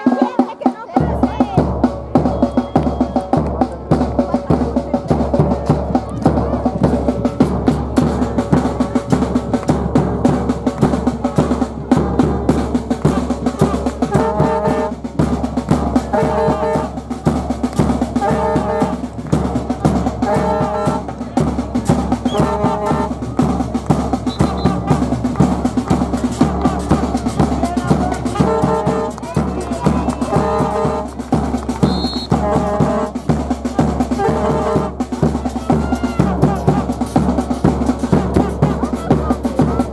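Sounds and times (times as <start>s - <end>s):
dense drumming: 0.1s - 39.9s
brass-like horn phrase: 13.0s - 15.1s, 16.0s - 17.1s, 18.1s - 19.1s, 20.0s - 21.1s, 22.2s - 23.5s, 24.2s - 37.2s.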